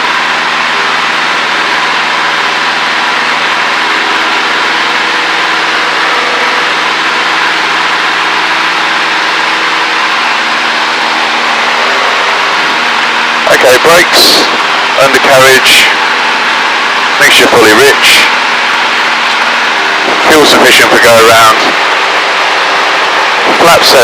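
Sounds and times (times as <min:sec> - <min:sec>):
aircraft engine and propeller drone: 0:00.0 - 0:24.0.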